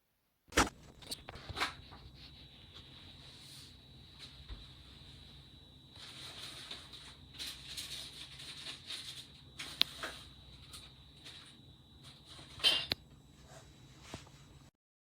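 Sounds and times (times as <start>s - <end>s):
rustling handling noise: 6.0s - 12.8s.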